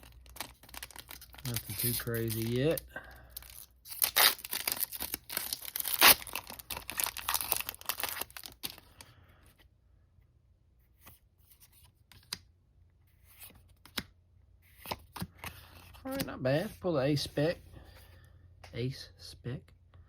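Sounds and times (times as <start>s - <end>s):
foil wrapper tearing and crinkling: 0.0s - 9.0s.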